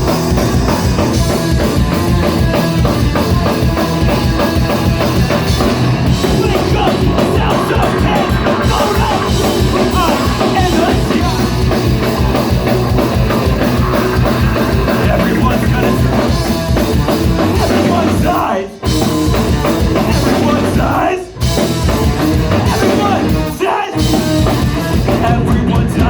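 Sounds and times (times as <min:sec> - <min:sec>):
drum kit: 0:00.0 - 0:26.0
live rock band playing: 0:00.0 - 0:26.0
person singing: 0:06.1 - 0:11.8, 0:14.2 - 0:16.5, 0:17.4 - 0:18.9, 0:20.0 - 0:21.4, 0:22.6 - 0:26.0.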